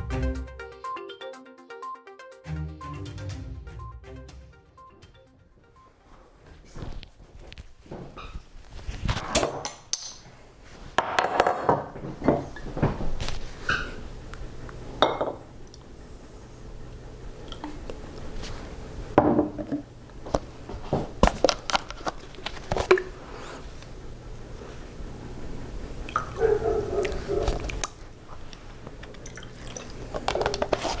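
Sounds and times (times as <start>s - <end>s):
dishes and cutlery clinking: 9.2s - 10.4s, 15.0s - 15.5s.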